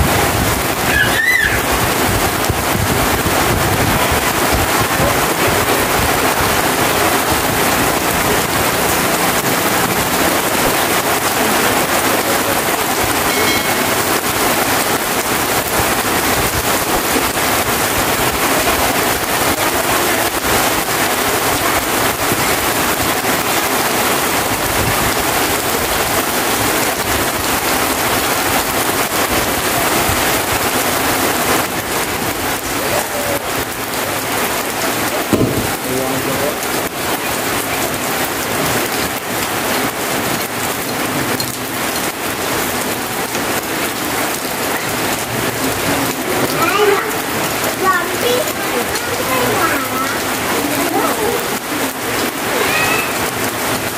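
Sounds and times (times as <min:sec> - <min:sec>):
heavy rain pouring: 0:00.0 - 0:53.9
knock: 0:35.3 - 0:35.7.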